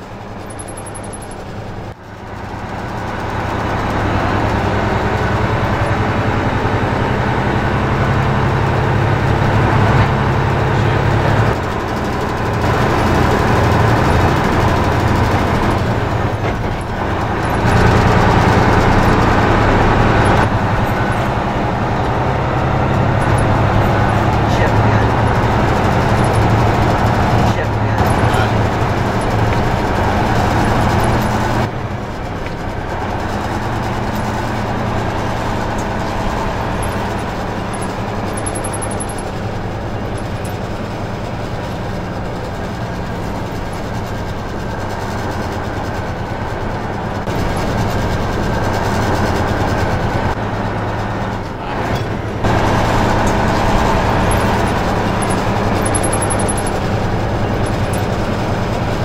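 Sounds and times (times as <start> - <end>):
road noise: 0.0 - 59.0
truck diesel engine running: 0.0 - 59.0.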